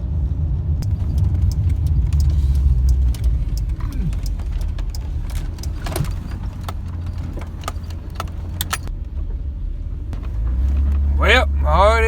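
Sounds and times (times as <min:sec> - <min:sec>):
truck road and engine rumble: 0:00.0 - 0:12.0
light clicks and rattles: 0:00.8 - 0:09.2.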